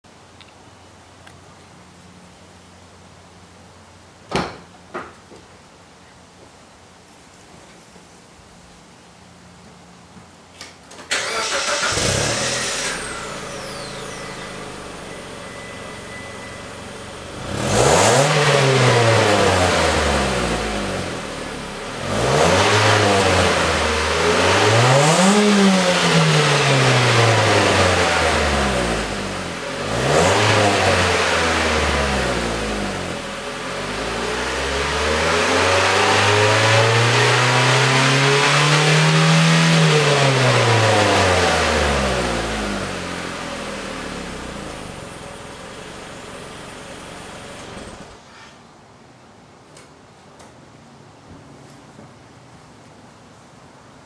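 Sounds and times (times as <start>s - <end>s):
car engine starting and revving: 11.1s - 48.2s.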